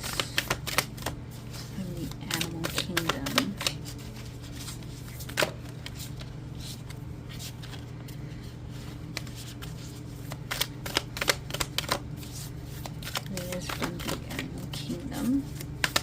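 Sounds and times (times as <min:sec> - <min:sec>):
cards being shuffled: 0:00.0 - 0:16.0
steady low hum: 0:00.0 - 0:16.0
card snap: 0:02.3 - 0:03.8.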